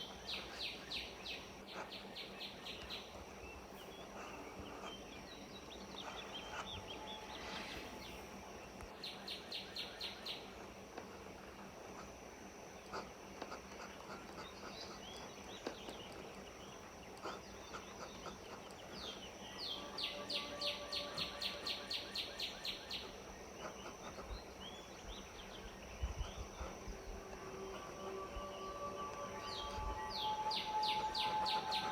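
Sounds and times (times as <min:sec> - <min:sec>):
birds chirping: 0:00.0 - 0:31.9
bird trilling: 0:19.1 - 0:31.9.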